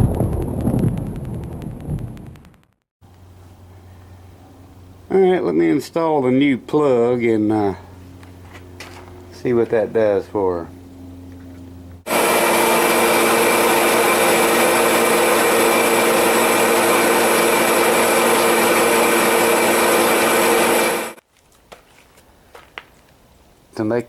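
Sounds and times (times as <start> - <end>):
heater fan and burner rushing: 3.1 - 21.2.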